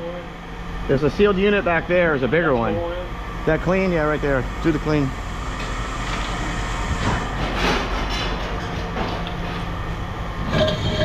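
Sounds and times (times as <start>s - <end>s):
scrap metal clattering and scraping: 7.0s - 9.7s, 10.4s - 11.0s.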